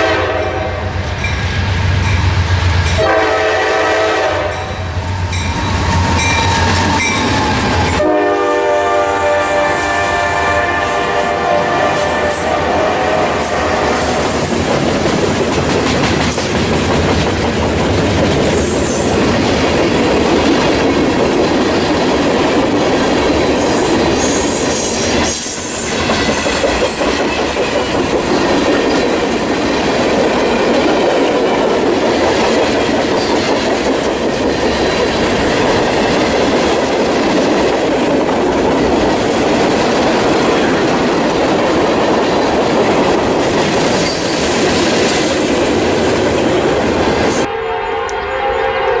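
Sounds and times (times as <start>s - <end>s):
freight train rumbling past: 0.0s - 49.0s
train wheels squealing: 4.6s - 8.0s, 22.7s - 27.1s.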